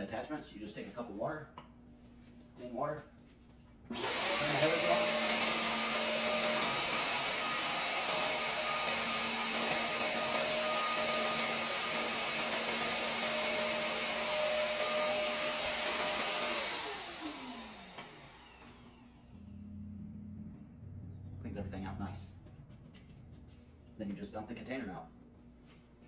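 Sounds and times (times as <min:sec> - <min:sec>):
motor winding down whine: 0:03.9 - 0:21.6
wet dry vacuum running: 0:03.9 - 0:21.6.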